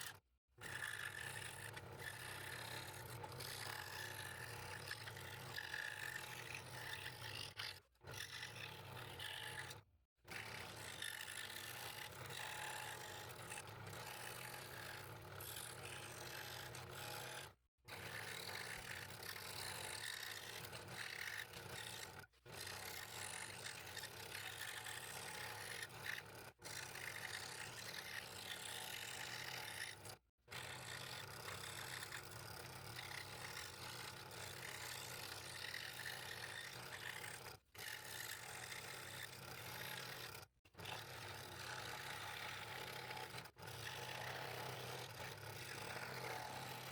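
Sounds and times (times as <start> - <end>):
scroll saw cutting wood: 0.0 - 46.9.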